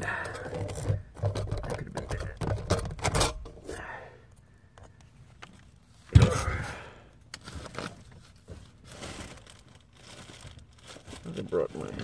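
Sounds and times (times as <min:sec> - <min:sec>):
person sighing heavily: 0:00.0 - 0:00.6, 0:03.6 - 0:04.3, 0:06.1 - 0:07.2.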